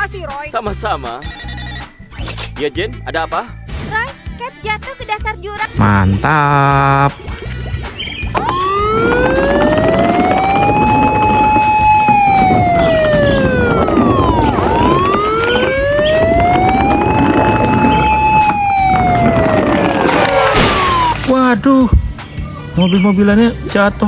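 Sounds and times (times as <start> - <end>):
fire truck siren wailing: 8.3 - 21.3.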